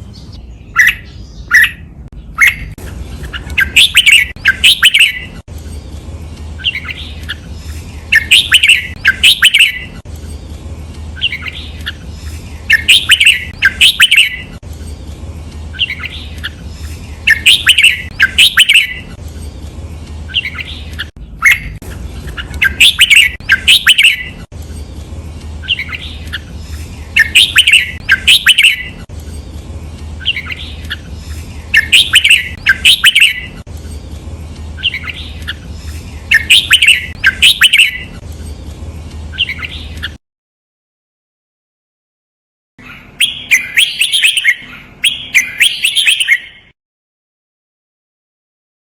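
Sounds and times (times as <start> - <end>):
steady low hum: 0.0 - 40.1
bird singing whistled notes: 0.1 - 5.4, 6.6 - 10.0, 11.2 - 14.6, 15.7 - 19.2, 20.3 - 24.5, 25.6 - 29.1, 30.2 - 33.6, 34.8 - 38.2, 39.3 - 40.2, 42.8 - 46.7.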